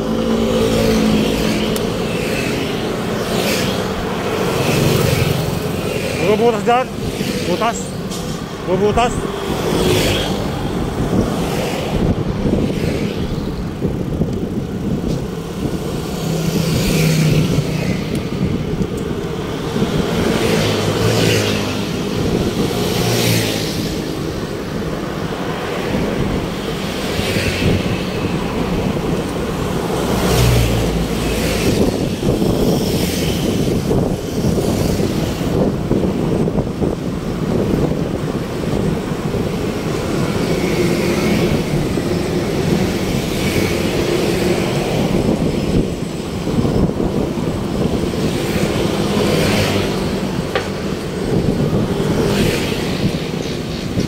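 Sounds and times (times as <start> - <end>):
cars passing by: 0.0 - 54.0
rumble of vehicles: 0.0 - 54.0.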